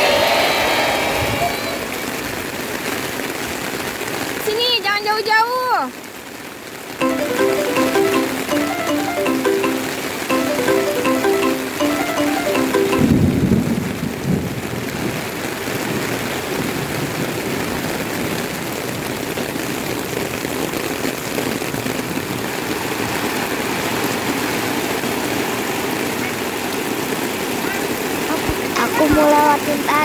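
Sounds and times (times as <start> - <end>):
rain falling on ground: 1.8 - 8.0, 12.5 - 30.0.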